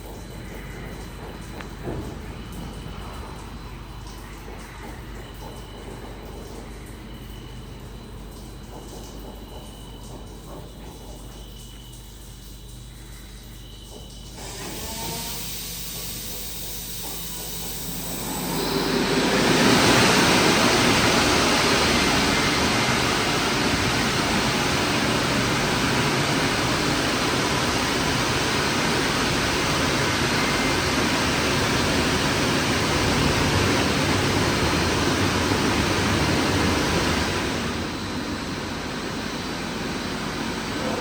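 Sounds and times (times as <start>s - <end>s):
car wash machine rushing: 14.0s - 41.0s.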